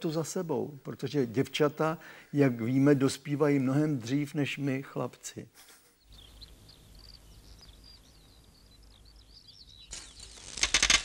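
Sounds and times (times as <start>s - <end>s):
small birds chirping: 5.8s - 11.0s.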